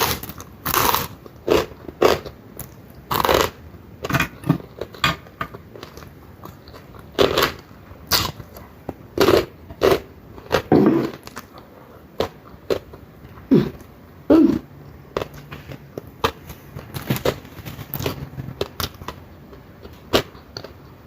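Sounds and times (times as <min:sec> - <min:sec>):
crunchy bites and chewing: 0:00.0 - 0:11.6, 0:15.1 - 0:19.2.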